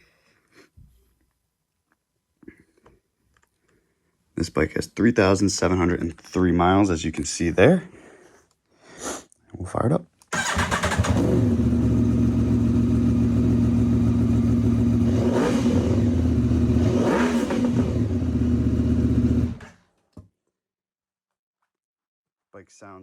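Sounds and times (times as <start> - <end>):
motorcycle engine idling and revving: 10.4 - 19.8.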